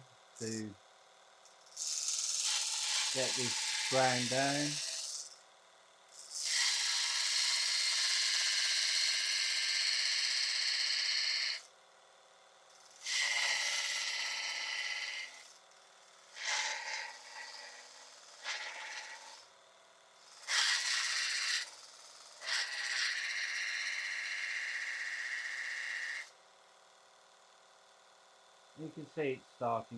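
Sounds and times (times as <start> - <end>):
chisel grinding on belt sander: 1.7 - 5.4, 6.2 - 11.7, 12.8 - 15.6, 16.2 - 19.5, 20.2 - 26.3.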